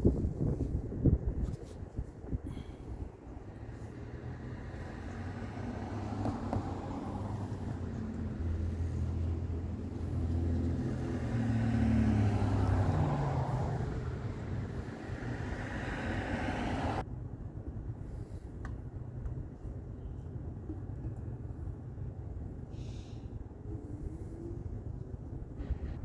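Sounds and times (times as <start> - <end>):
vehicle engine humming: 2.5 - 17.0.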